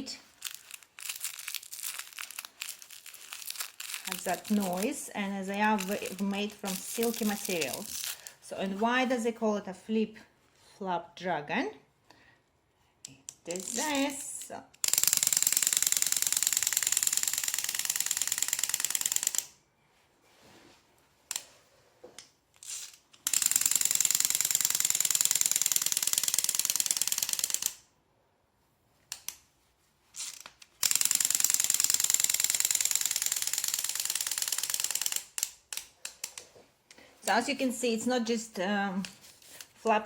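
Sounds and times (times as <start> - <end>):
toy mechanism clicking rapidly: 0.4 - 8.2, 13.4 - 19.6, 22.6 - 27.9, 30.2 - 36.4.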